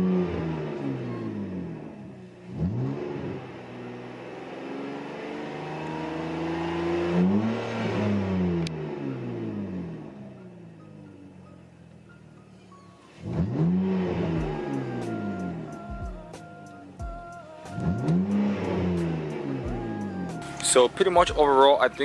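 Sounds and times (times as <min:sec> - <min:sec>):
car exhaust revving: 0:00.0 - 0:12.4, 0:13.1 - 0:17.0, 0:17.7 - 0:22.0.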